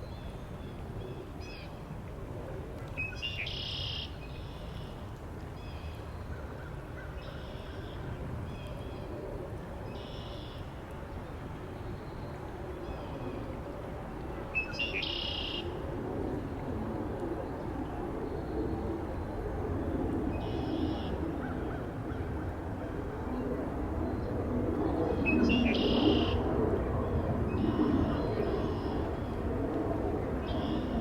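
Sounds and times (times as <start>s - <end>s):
steady wind: 0.0s - 31.0s.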